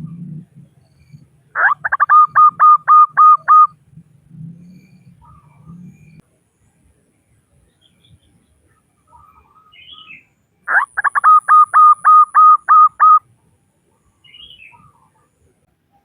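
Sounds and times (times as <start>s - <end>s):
soft high chirps: 0.6s - 3.8s
dove cooing: 1.5s - 3.8s, 10.7s - 13.2s.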